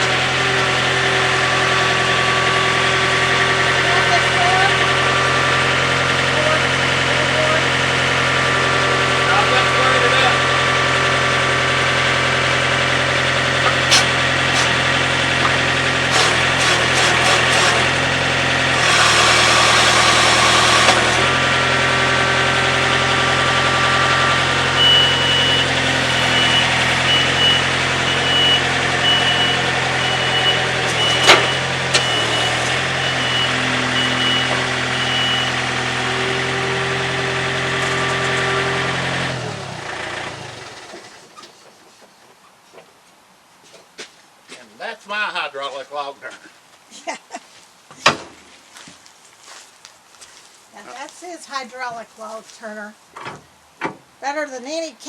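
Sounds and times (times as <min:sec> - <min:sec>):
sawmill engine running: 0:00.0 - 0:41.5
faint high beep: 0:24.8 - 0:35.6.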